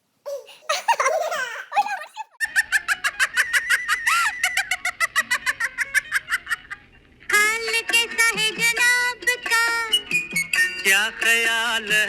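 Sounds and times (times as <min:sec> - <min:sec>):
people laughing and squealing: 0:00.7 - 0:06.9.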